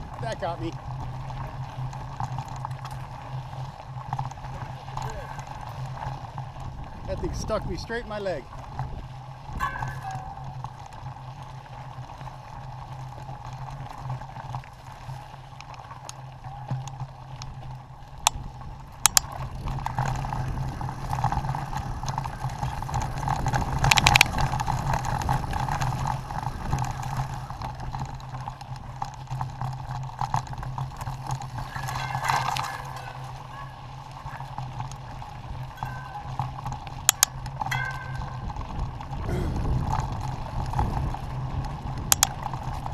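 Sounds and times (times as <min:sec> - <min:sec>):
mountain bike tyre and drivetrain noise: 0:00.0 - 0:42.9
sharp rattling clicks: 0:19.0 - 0:19.3, 0:37.0 - 0:38.5, 0:42.0 - 0:42.4.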